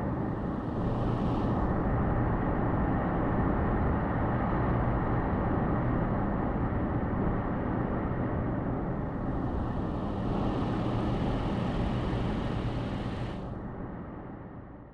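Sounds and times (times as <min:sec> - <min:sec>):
road and tyre noise: 0:08.7 - 0:13.6.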